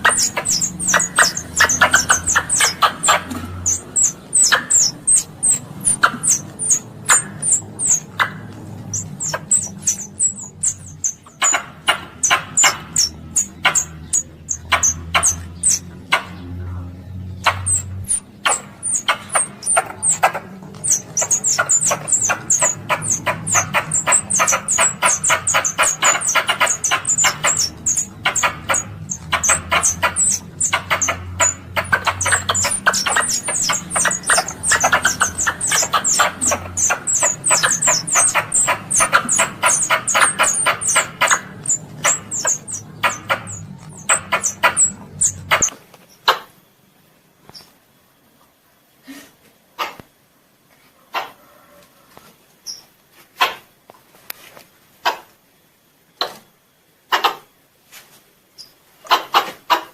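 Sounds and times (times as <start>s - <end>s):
squirrel chirping: 0.0s - 46.4s.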